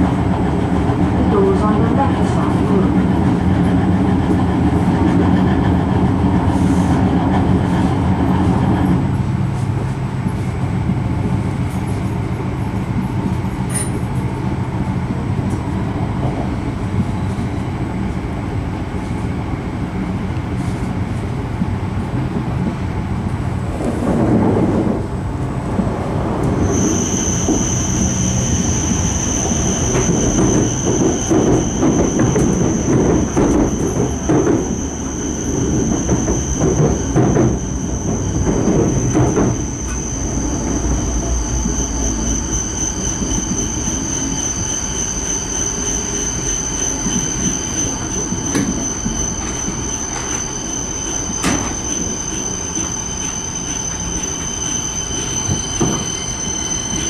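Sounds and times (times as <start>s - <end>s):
train running rumble: 0.0s - 57.0s
high-pitched whine: 24.9s - 57.0s.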